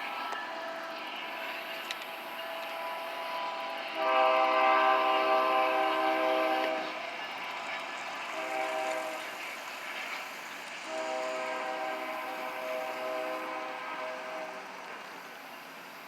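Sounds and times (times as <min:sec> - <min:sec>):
locomotive air horn: 0:02.8 - 0:07.0, 0:08.3 - 0:09.3, 0:10.9 - 0:14.7.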